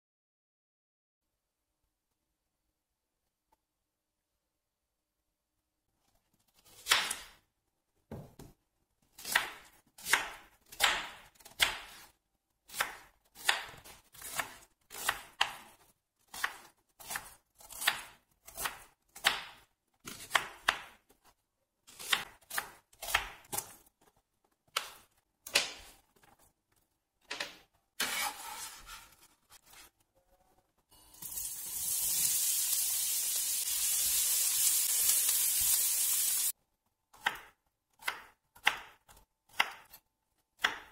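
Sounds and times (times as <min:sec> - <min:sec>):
knife chopping on wooden board: 0:12.7 - 0:15.7, 0:16.3 - 0:21.0, 0:21.9 - 0:23.7, 0:37.2 - 0:40.0, 0:40.6 - 0:40.9
onion sizzling in oil: 0:31.1 - 0:36.5.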